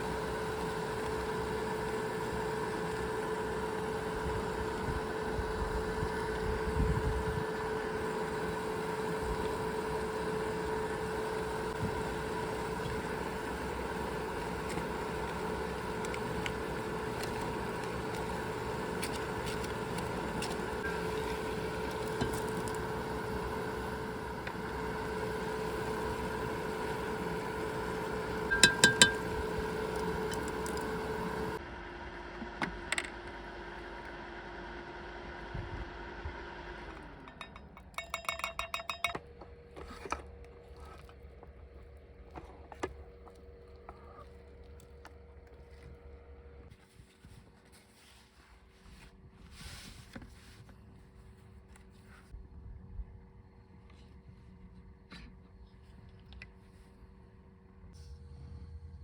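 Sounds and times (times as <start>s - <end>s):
machine hum: 0.0s - 35.4s, 57.8s - 59.0s.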